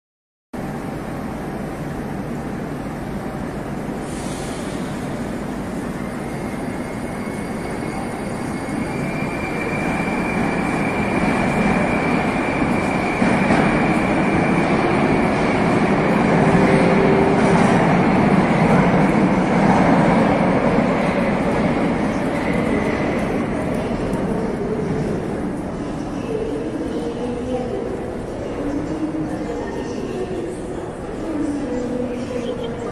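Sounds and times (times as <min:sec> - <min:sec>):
train high whine: 0:00.6 - 0:25.8
metro train wheels rumbling: 0:00.6 - 0:32.9.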